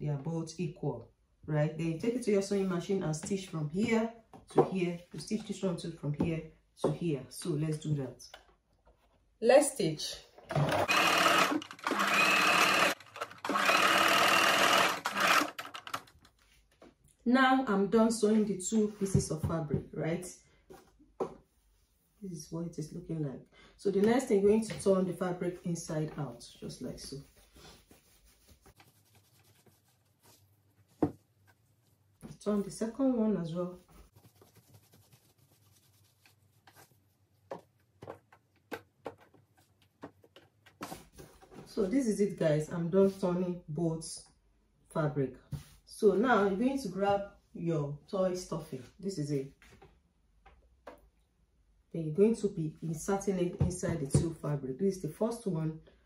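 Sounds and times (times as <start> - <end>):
sewing machine stitching: 10.5 - 16.1
cloth rustling: 26.2 - 32.8, 33.7 - 38.0.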